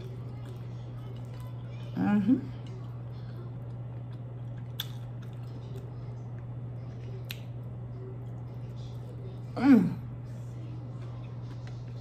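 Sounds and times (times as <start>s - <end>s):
wet chewing: 0.0s - 9.2s
steady low hum: 0.0s - 12.0s.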